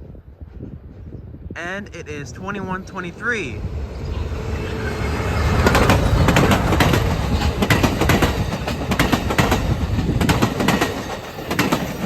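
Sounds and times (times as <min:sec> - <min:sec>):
passenger train rumble: 0:00.0 - 0:12.0
train wheels clacking: 0:04.0 - 0:12.0.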